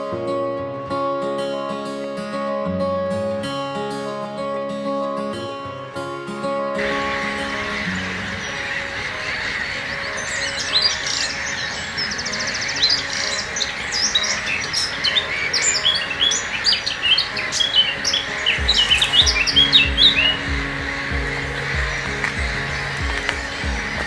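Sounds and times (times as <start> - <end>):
background music held notes: 0.0 - 24.0
many small birds chirping: 6.8 - 24.0
low beat: 18.6 - 24.0.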